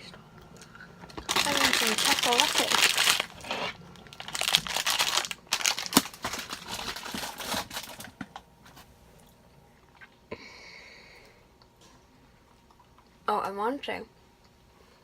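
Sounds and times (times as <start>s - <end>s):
snack packaging crinkling: 1.1s - 8.4s.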